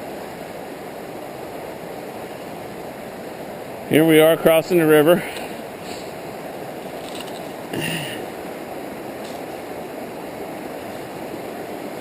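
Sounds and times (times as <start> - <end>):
river water rushing: 0.0 - 12.0
person vocal sound: 7.7 - 8.3.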